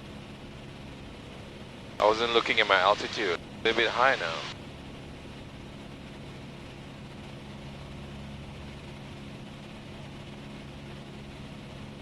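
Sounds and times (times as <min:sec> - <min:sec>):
propeller engine droning: 0:00.0 - 0:12.0.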